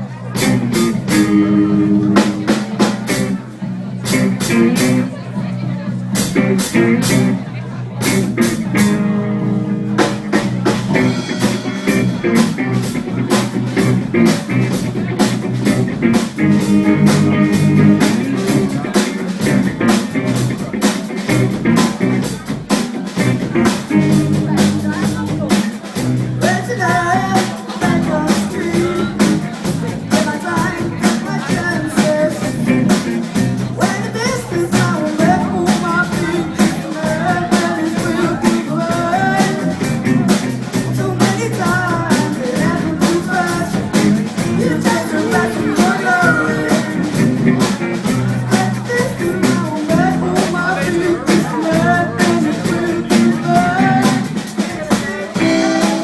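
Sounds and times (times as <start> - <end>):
rock band playing live: 0.0 - 56.0
person singing: 26.4 - 56.0.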